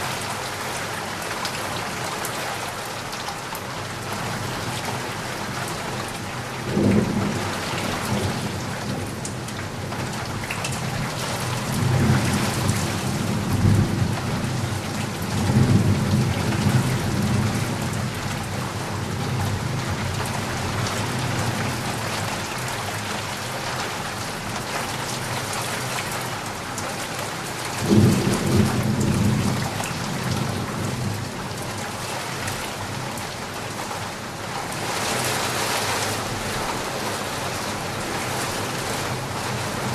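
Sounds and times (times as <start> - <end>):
heavy rain falling: 0.0 - 39.9
low rolls of thunder: 27.8 - 31.3.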